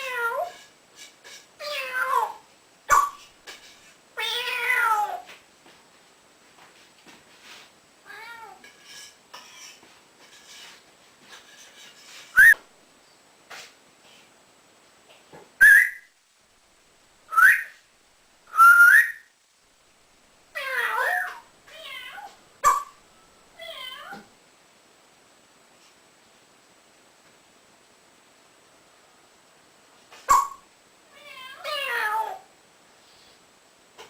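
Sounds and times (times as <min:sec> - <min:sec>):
parrot whistling: 0:12.4 - 0:12.6, 0:15.6 - 0:16.1, 0:17.3 - 0:17.8, 0:18.5 - 0:19.3
parrot meow-like calls: 0:20.6 - 0:22.9, 0:23.6 - 0:24.3, 0:30.3 - 0:32.5.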